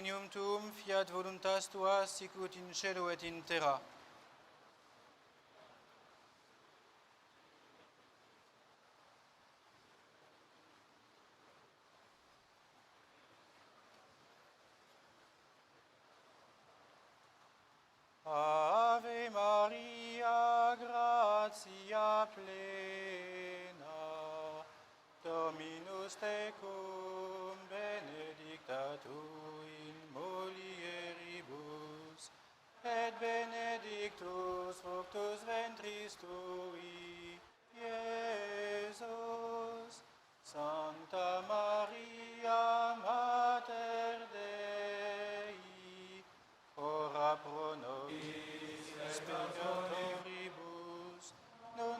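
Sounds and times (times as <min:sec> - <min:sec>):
man chanting a prayer: 0:00.0 - 0:03.8
faint background hiss: 0:00.0 - 0:51.9
men chanting a prayer: 0:46.8 - 0:51.9.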